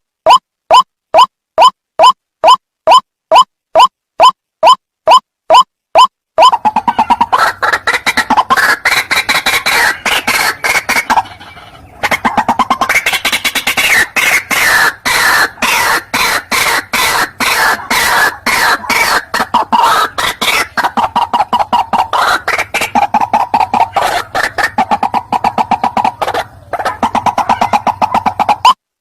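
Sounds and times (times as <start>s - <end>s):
waterhen calling harsh notes: 0.3s - 28.8s.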